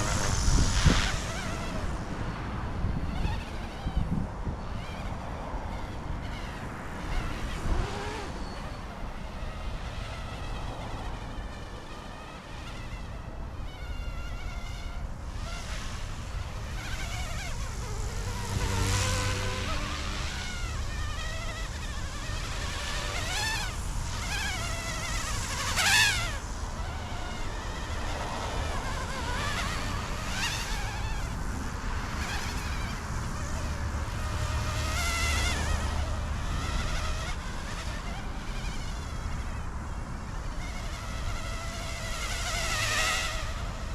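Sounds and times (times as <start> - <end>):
rc helicopter rotors buzzing: 0.0 - 43.9.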